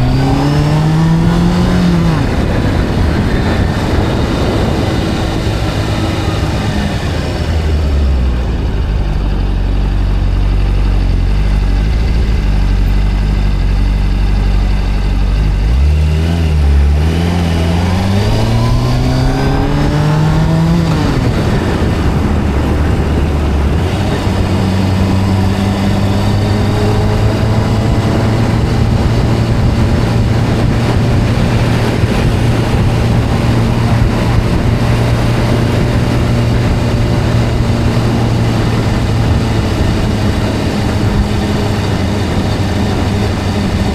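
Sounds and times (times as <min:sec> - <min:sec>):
video game motorbike engine revving: 0:00.0 - 0:43.9.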